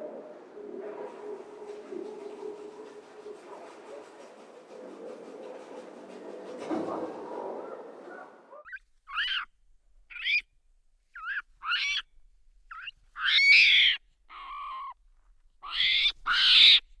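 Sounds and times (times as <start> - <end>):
marmoset high-pitched calls: 8.6 - 9.5, 10.1 - 10.5, 11.2 - 12.1, 12.7 - 15.0, 15.6 - 16.9.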